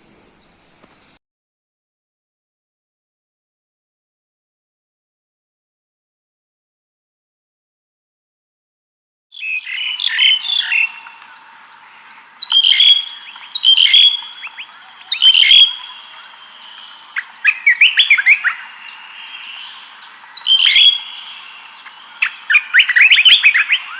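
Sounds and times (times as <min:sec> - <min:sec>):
songbirds chirping: 0:00.0 - 0:01.2, 0:09.4 - 0:23.9.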